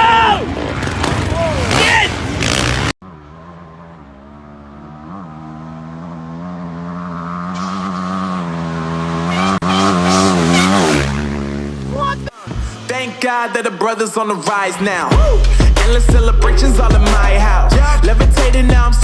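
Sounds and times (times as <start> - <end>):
motocross bike engine running hard: 0.6 - 12.9.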